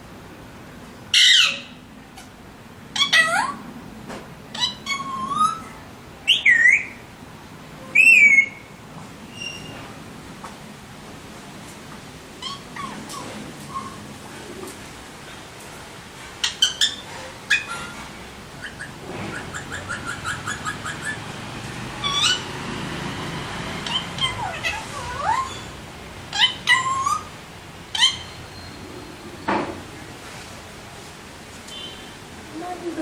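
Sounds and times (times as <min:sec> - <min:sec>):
parakeets squawking and chirping: 0:01.2 - 0:01.7, 0:04.5 - 0:05.7, 0:12.4 - 0:14.1, 0:16.4 - 0:28.9.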